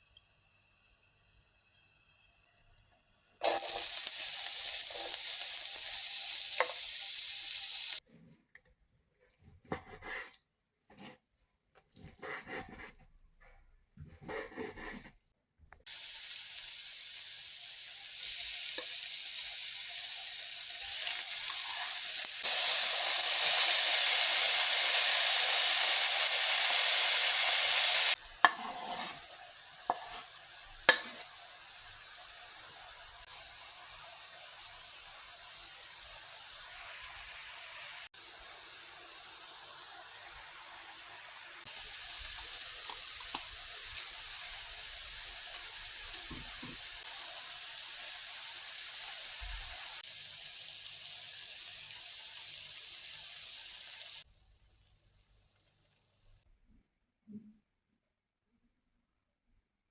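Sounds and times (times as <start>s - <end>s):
food sizzling in a pan: 0.0s - 8.0s, 15.8s - 56.5s
scraping sounds: 14.0s - 15.2s, 28.4s - 29.3s.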